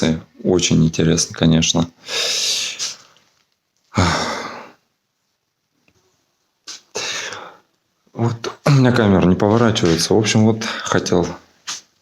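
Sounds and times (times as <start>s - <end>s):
man breathing heavily: 2.0s - 3.2s, 3.9s - 4.8s, 6.9s - 7.7s.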